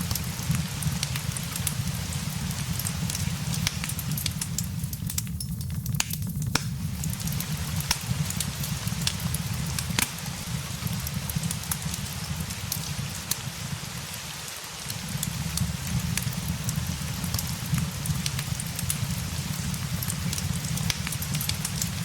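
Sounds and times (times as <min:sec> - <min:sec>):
fireplace crackling: 0:00.0 - 0:22.0
rain hiss: 0:00.0 - 0:22.0.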